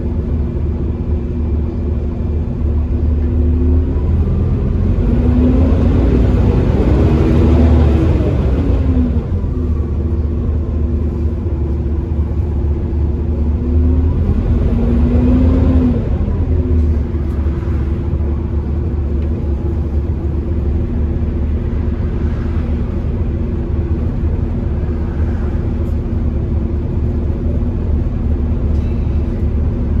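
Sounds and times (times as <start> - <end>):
bus engine droning: 0.0 - 30.0.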